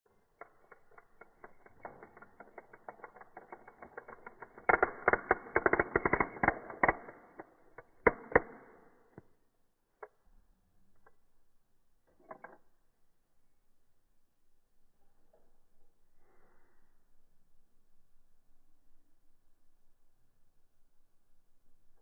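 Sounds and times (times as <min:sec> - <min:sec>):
toy car clicking on plastic track: 0:00.2 - 0:09.2, 0:12.2 - 0:12.6.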